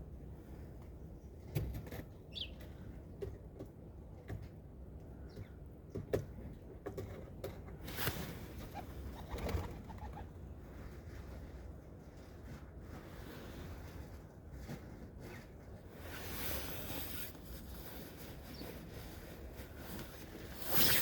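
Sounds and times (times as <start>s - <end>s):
small birds chirping: 2.3s - 2.7s, 18.5s - 18.8s
wings fluttering: 7.9s - 10.3s, 19.8s - 21.0s.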